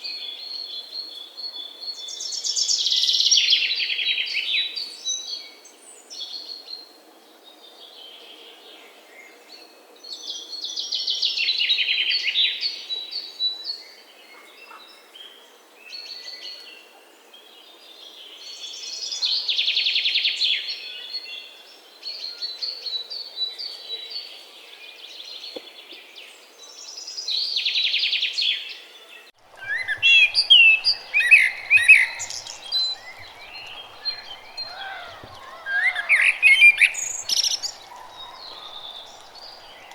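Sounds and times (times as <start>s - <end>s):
soft bird calls: 29.4s - 39.9s
trilled birdsong: 29.4s - 39.9s
chorus of sliding chirps: 29.5s - 39.9s.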